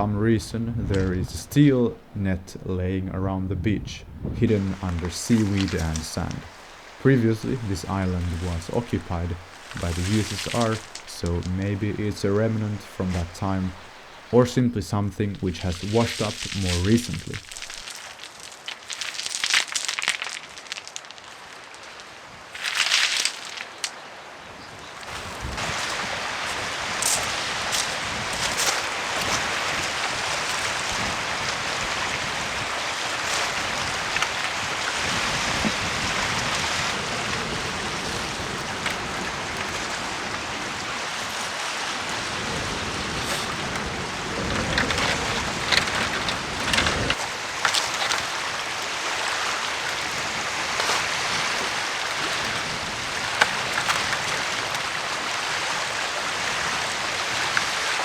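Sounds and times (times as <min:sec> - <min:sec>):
rain rushing: 0:00.0 - 0:24.0, 0:25.0 - 0:58.0
clicks and rustles: 0:04.6 - 0:11.6, 0:15.4 - 0:23.9, 0:43.1 - 0:55.0.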